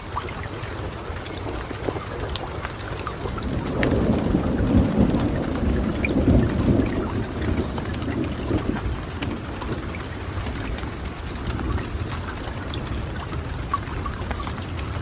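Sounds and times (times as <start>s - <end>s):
rain drips: 0.0s - 15.0s
steady rain: 0.0s - 15.0s
rolling thunder: 3.2s - 12.0s.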